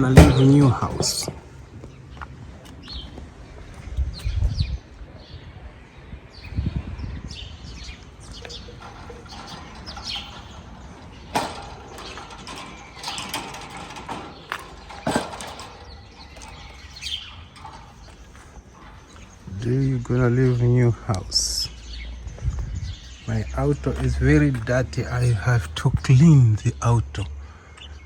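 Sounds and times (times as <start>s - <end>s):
knocks against cage: 0.0s - 1.4s, 11.3s - 18.0s.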